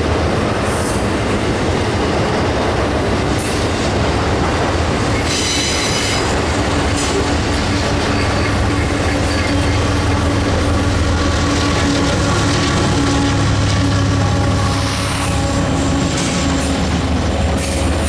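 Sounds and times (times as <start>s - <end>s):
freight train rolling past: 0.0s - 18.0s
train wheel squeal: 5.1s - 18.0s.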